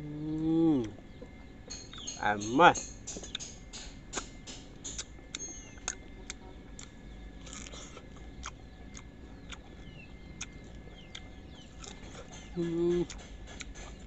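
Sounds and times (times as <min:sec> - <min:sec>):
person humming: 0:00.0 - 0:01.0, 0:12.6 - 0:13.2
person chewing: 0:04.2 - 0:14.0
wet mouth clicks: 0:04.9 - 0:09.6, 0:11.1 - 0:14.0
biting into fruit: 0:04.9 - 0:14.0.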